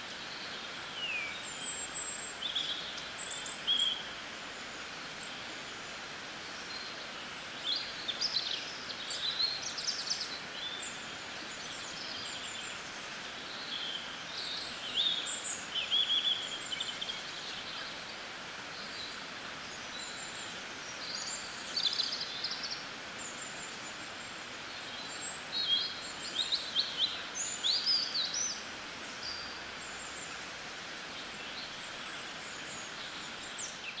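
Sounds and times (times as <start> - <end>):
small birds chirping: 0.0 - 34.0
steady outdoor hiss: 0.0 - 34.0.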